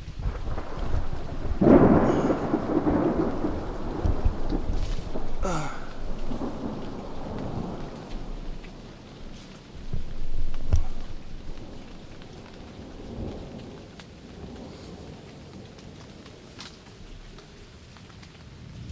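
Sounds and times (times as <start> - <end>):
thunder rumbling: 0.0 - 16.0
heavy rain on a tent: 0.0 - 18.9.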